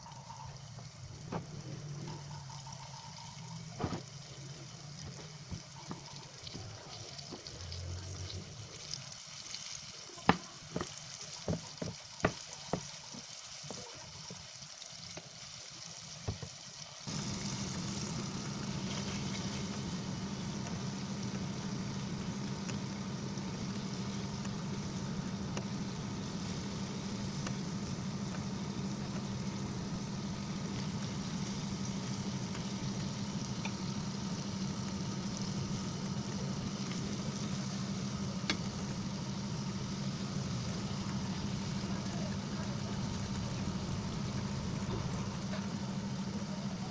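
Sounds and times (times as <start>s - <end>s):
frying sizzle: 0.0s - 46.9s
low hum: 17.1s - 46.9s.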